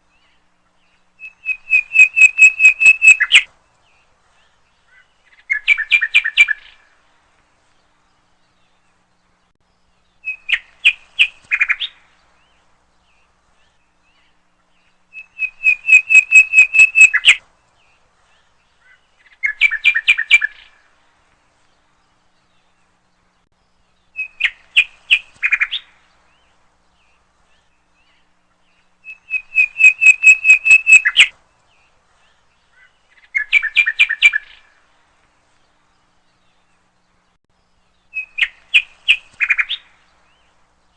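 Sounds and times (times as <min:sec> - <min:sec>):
songbird singing: 0:00.0 - 0:40.9.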